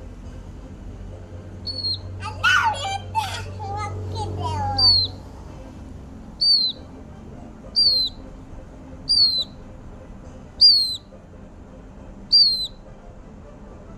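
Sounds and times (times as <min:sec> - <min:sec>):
bird chick peeping: 0:01.6 - 0:02.7, 0:04.2 - 0:05.3, 0:06.4 - 0:06.9, 0:07.7 - 0:08.3, 0:09.0 - 0:09.6, 0:10.6 - 0:11.0, 0:12.3 - 0:12.8.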